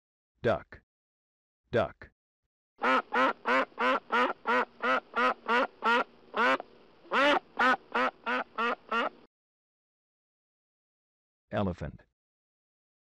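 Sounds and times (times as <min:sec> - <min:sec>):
duck quacking: 0:02.8 - 0:09.2.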